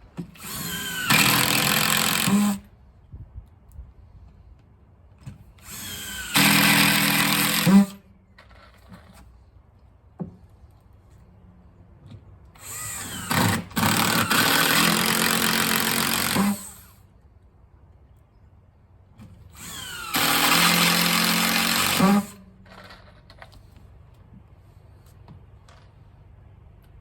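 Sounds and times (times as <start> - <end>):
electric drill whining: 0.4 - 2.6, 5.6 - 8.0, 12.6 - 16.9, 19.6 - 22.4.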